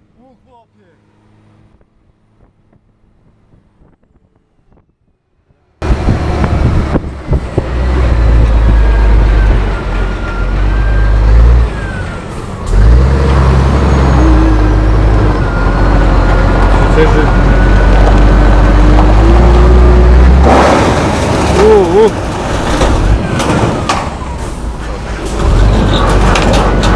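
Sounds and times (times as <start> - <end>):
truck diesel engine under load: 5.4 - 26.9.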